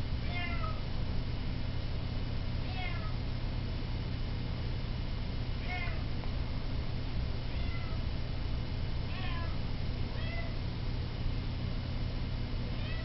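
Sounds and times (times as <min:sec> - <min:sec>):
air conditioner humming: 0:00.0 - 0:13.0
cat meowing: 0:00.2 - 0:00.8, 0:02.7 - 0:03.2, 0:05.6 - 0:06.0, 0:07.5 - 0:08.0, 0:09.1 - 0:10.6, 0:12.8 - 0:13.0.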